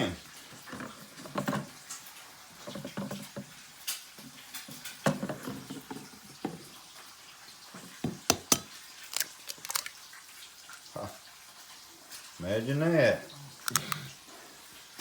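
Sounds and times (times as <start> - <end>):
eggshells cracking: 8.3 - 10.9, 13.6 - 14.0
wet egg sliding out: 9.1 - 10.0.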